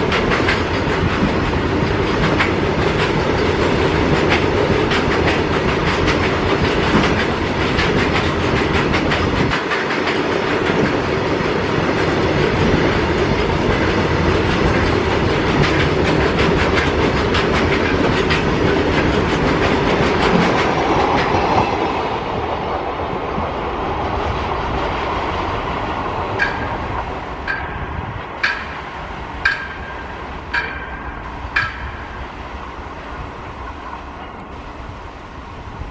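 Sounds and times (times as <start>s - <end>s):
freight train wheels clacking: 0.0s - 34.6s.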